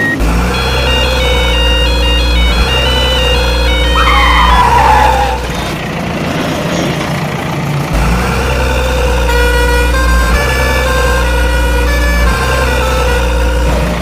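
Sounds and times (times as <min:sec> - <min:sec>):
truck engine sound effect: 0:00.0 - 0:14.0
looping background music: 0:00.4 - 0:04.8.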